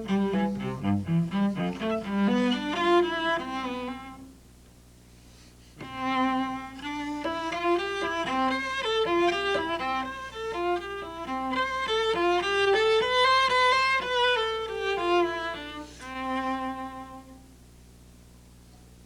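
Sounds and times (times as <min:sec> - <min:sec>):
cello bowed melody: 0:00.0 - 0:04.3, 0:05.8 - 0:17.5
faint low hum: 0:00.0 - 0:19.0.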